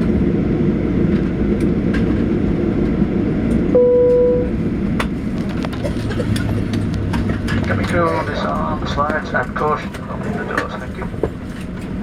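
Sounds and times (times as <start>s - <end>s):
aircraft cabin rumble: 0.0s - 12.0s
electronic cabin chime: 3.7s - 4.6s.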